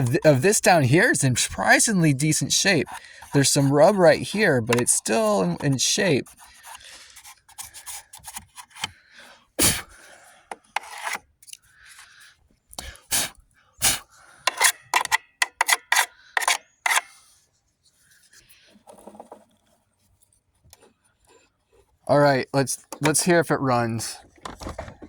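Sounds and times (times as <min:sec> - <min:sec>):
rubbing and scraping on plastic: 0:00.0 - 0:12.3, 0:12.9 - 0:25.0
clicks and knocks on plastic: 0:24.2 - 0:25.0.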